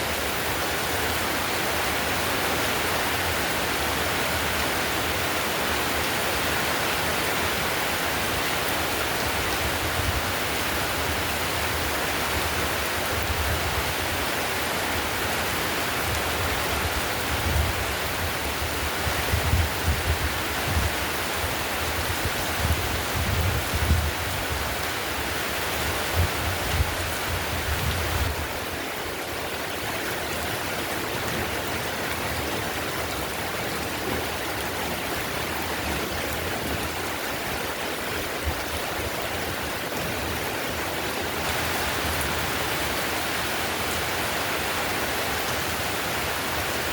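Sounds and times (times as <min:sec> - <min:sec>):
heavy rain on a tiled roof: 0:00.0 - 0:46.9.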